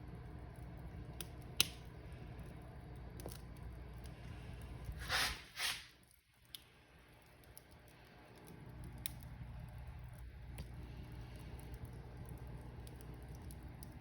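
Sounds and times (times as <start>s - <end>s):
low rumble of flames: 0.0s - 14.0s
wood fire crackling: 0.0s - 14.0s
sharp pops of fire: 1.2s - 1.9s
fire hissing bursts: 4.2s - 6.1s.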